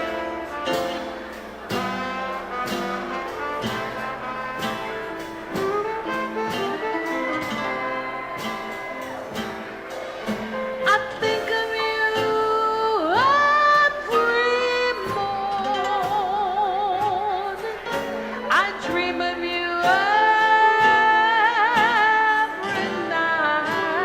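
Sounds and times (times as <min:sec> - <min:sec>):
instrumental accompaniment: 0:00.0 - 0:24.0
woman singing jazz ballad: 0:10.8 - 0:24.0.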